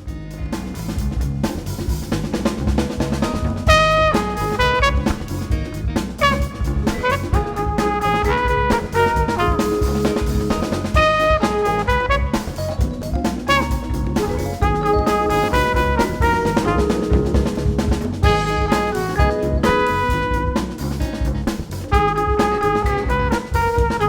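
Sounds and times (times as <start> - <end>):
drum kit: 0.0 - 24.0
electric bass: 0.0 - 24.0
brass horn melody: 3.6 - 12.8, 13.5 - 21.0, 21.9 - 24.0.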